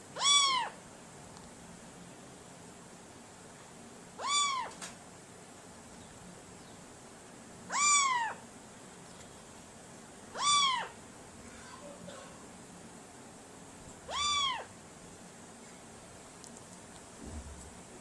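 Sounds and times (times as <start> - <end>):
cat meowing: 0.2 - 0.8, 4.2 - 4.8, 7.7 - 8.4, 10.3 - 11.0, 14.1 - 14.7.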